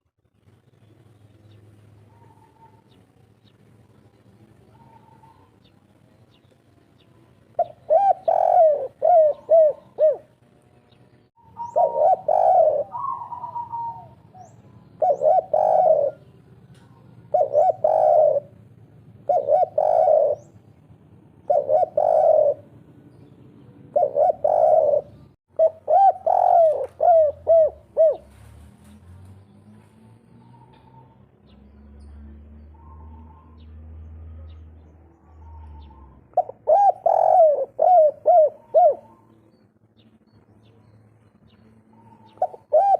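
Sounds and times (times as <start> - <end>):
dove cooing: 2.0 - 3.0, 4.6 - 5.7, 7.6 - 10.4, 11.4 - 20.7, 21.4 - 28.6, 32.6 - 33.7, 34.4 - 39.6, 41.8 - 42.9.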